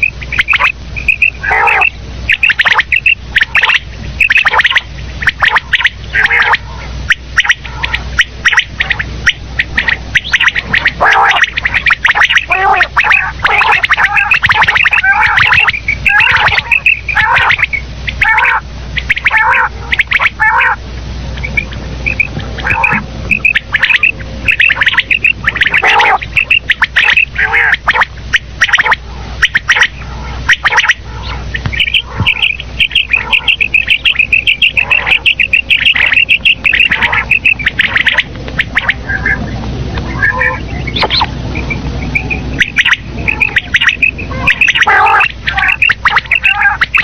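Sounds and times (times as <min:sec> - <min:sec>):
quail calling: 0:00.0 - 0:47.0.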